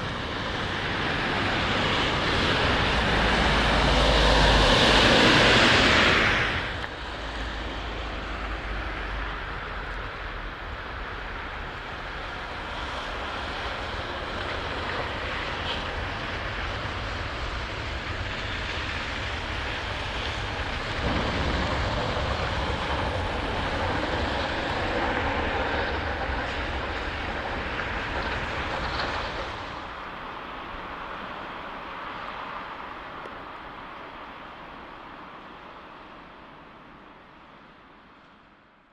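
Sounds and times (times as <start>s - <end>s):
heavy vehicle engine rumble: 0.0s - 30.9s
broad rushing noise: 0.0s - 36.4s.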